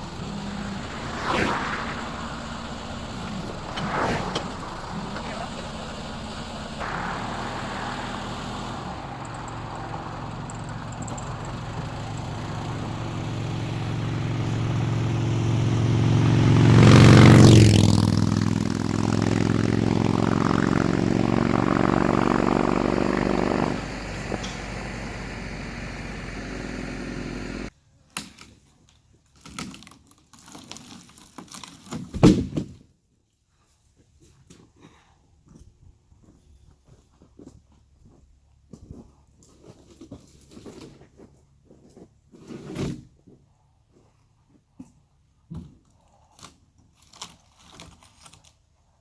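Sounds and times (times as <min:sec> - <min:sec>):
machine engine running: 0:00.0 - 0:27.7.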